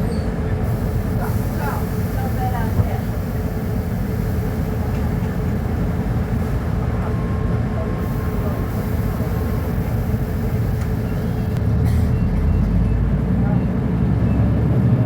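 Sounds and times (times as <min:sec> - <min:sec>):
diesel bus engine running: 0:00.0 - 0:15.0.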